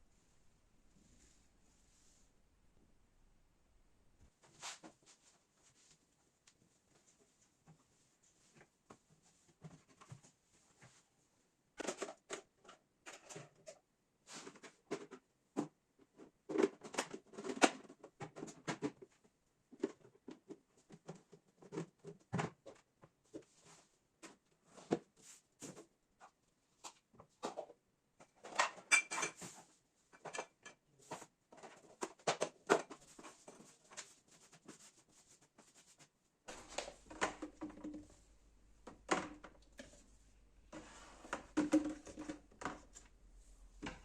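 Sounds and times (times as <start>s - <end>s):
household things clicking and knocking: 11.8s - 13.8s, 14.4s - 23.6s, 25.7s - 34.9s, 35.5s - 44.0s.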